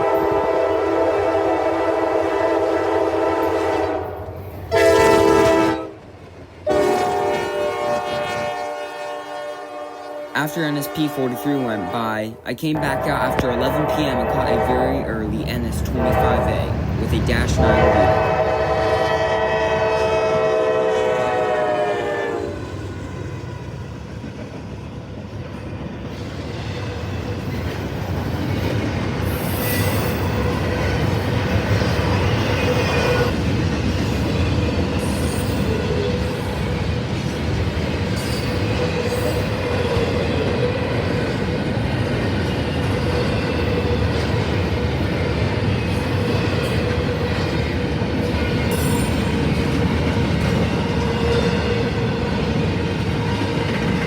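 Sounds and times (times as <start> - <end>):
train horn chord: 0.0 - 6.0, 6.7 - 12.2, 12.8 - 16.9, 17.5 - 22.6
train wheels on rails: 22.6 - 54.0.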